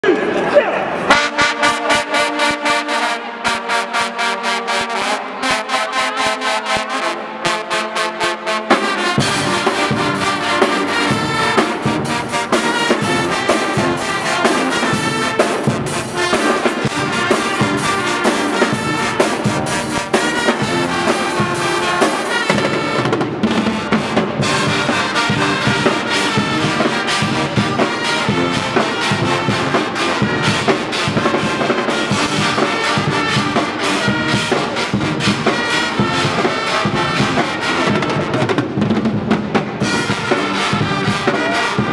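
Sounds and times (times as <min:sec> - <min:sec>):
loud brass band playing: 0:00.0 - 0:41.9
steady drum beat: 0:08.5 - 0:41.9.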